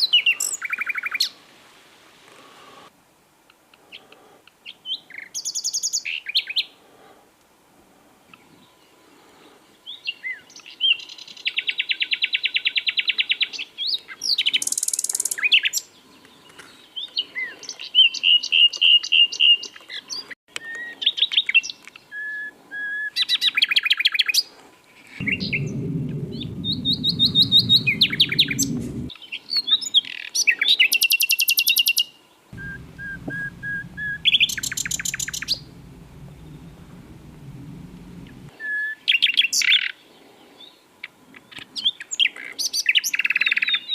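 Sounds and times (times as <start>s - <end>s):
low background rumble: 25.2s - 29.1s, 32.6s - 38.5s.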